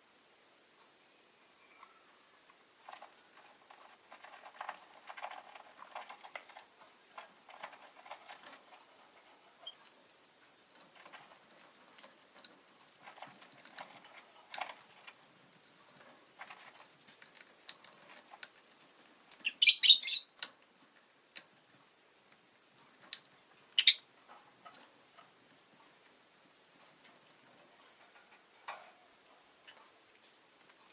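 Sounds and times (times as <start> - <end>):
soft clicks and rustles: 1.6 - 19.6, 20.2 - 30.9
bird chirping: 19.4 - 20.3, 23.8 - 24.1.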